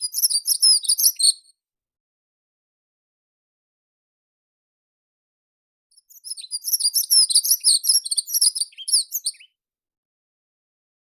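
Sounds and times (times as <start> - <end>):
songbird twittering: 6.1 - 9.5.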